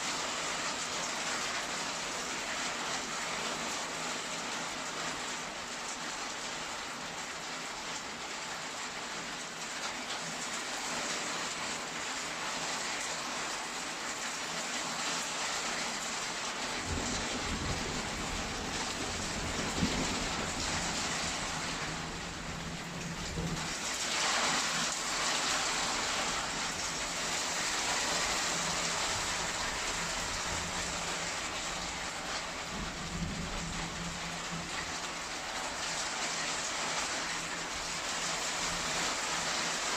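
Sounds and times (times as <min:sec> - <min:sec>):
heavy rain hissing: 0:10.6 - 0:39.9
low rolling thunder: 0:16.8 - 0:23.8, 0:28.7 - 0:35.1.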